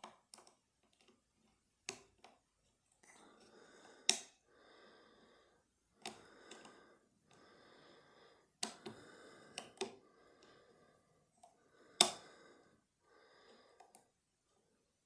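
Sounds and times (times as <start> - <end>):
soft breathing: 3.0 - 15.0.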